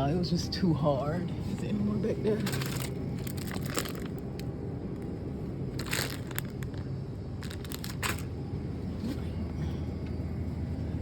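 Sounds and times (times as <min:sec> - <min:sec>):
steady low hum: 0:00.0 - 0:11.0
crinkling crunching noise: 0:02.3 - 0:08.4.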